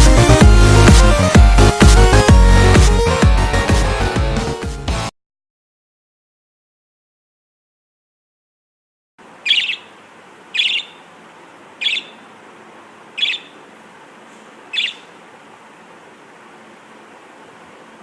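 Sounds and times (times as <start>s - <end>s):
budgerigar calling: 9.4s - 12.3s, 13.1s - 13.7s, 14.6s - 15.2s.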